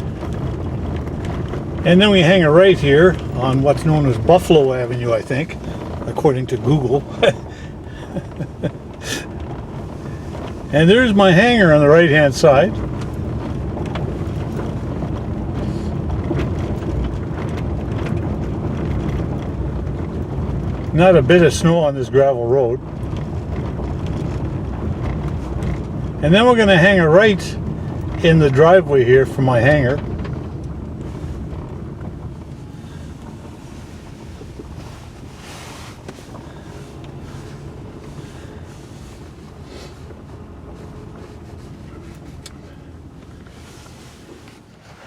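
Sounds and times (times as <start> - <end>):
engine and tyres rumbling: 0.0 - 45.0
gravel ticks: 0.0 - 45.0.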